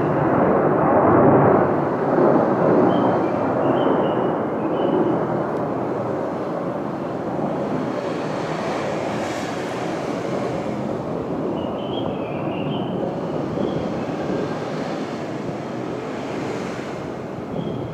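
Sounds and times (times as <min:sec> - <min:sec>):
fighter jets roaring: 0:05.3 - 0:17.9.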